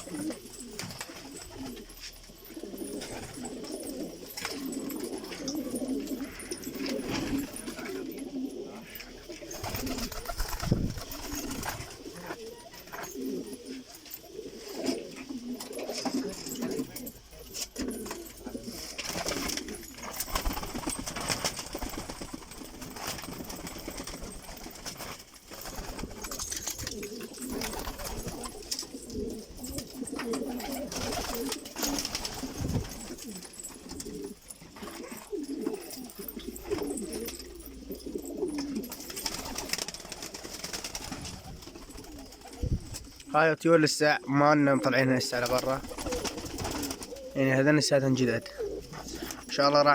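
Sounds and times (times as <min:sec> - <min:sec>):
pigeons cooing: 0:00.0 - 0:49.9.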